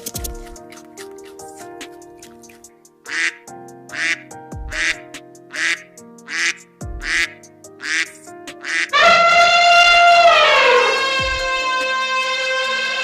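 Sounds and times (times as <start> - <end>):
background music: 0.0 - 13.0
harsh animal call: 5.5 - 11.3.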